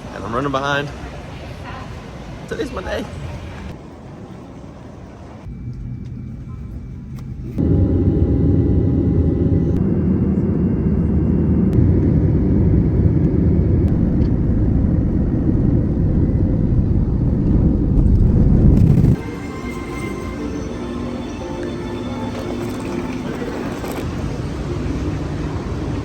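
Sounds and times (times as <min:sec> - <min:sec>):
jet engine rumble in cabin: 0:06.0 - 0:19.2.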